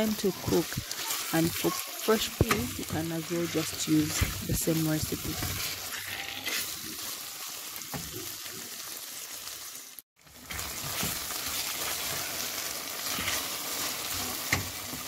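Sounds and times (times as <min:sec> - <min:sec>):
vegetables sizzling in oil: 0:00.0 - 0:15.0
spatula scraping a metal pot: 0:05.2 - 0:07.0, 0:13.0 - 0:14.6.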